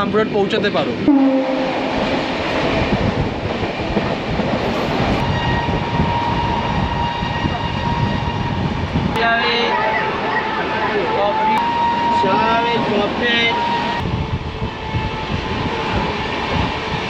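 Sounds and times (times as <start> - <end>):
train rumbling and rattling on rails: 0.0 - 17.0.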